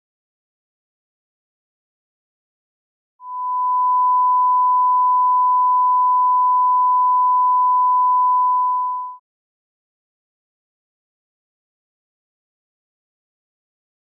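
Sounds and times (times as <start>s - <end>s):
pure test tone: 3.2s - 9.2s.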